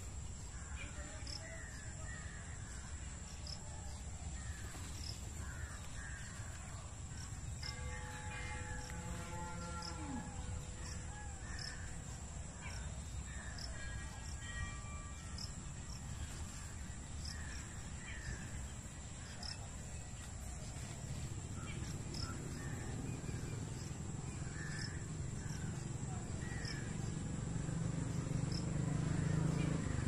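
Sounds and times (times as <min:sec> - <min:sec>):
high insect drone: 0:00.0 - 0:30.0.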